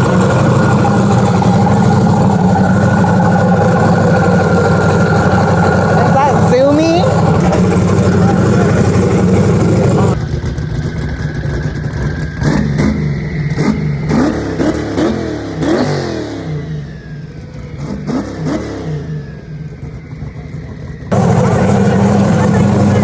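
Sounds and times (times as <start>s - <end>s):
exhaust cracks: 0.0s - 15.1s, 21.1s - 23.0s
car engine revving: 0.0s - 23.0s.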